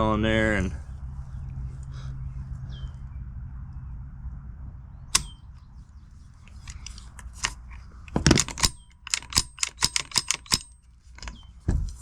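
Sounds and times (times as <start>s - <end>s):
cartridges clicking into magazine: 6.5s - 11.4s.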